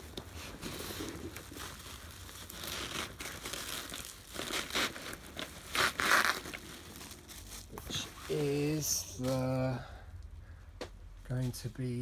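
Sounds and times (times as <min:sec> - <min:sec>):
packaging crinkling and rustling: 0:00.0 - 0:09.5.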